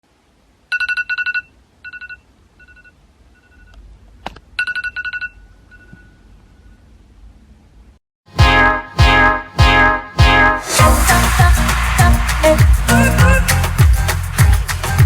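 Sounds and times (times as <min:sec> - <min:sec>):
electronic ringtone trilling beeps: 0:00.7 - 0:03.7.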